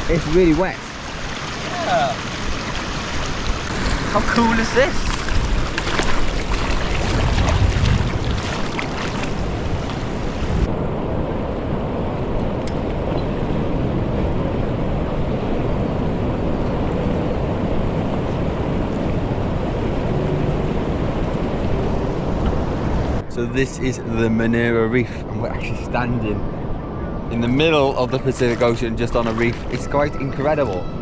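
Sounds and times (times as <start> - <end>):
water spray splashing: 0.0 - 10.7
wind buffeting microphone: 2.2 - 23.2.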